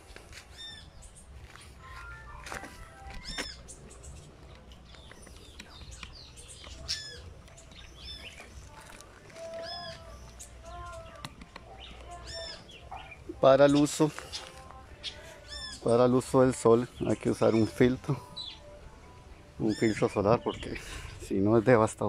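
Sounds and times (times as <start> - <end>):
loud bird chirp: 0.5 - 1.8, 3.0 - 8.7, 9.4 - 18.8, 19.4 - 21.3
faint bird calls: 2.8 - 8.8, 9.4 - 16.0.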